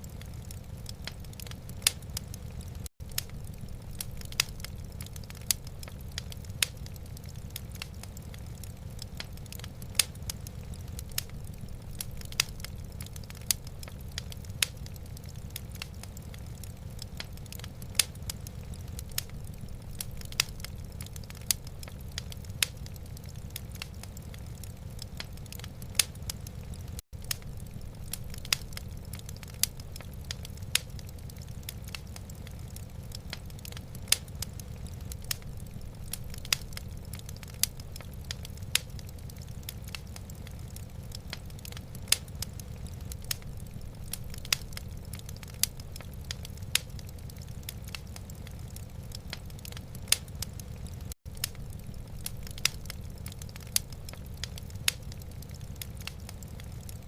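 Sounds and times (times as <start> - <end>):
steady low rumble: 0.0 - 30.9
wood fire crackling: 0.0 - 57.0.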